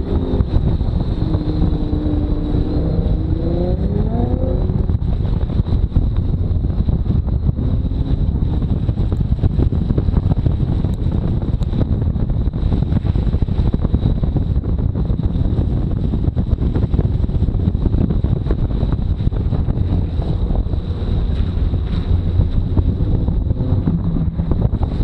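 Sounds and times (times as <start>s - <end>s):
wind buffeting microphone: 0.0s - 25.0s
car running over standing water: 18.7s - 25.0s.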